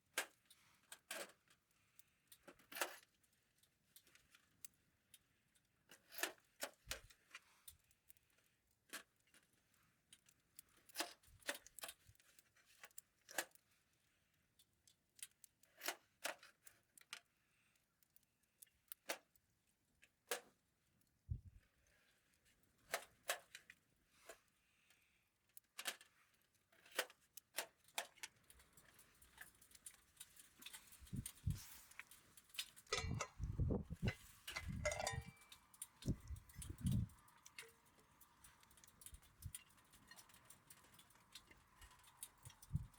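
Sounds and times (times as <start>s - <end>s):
faint sharp clicks and clinks: 22.9s - 42.9s.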